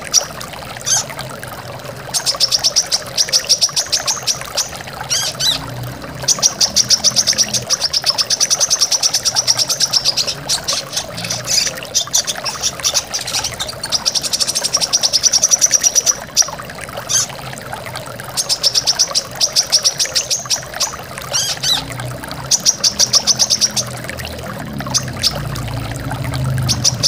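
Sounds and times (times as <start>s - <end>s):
flowing water: 0.0s - 27.0s
bird singing rapid trills: 2.2s - 5.7s, 6.3s - 17.4s, 18.4s - 24.1s, 26.6s - 27.0s.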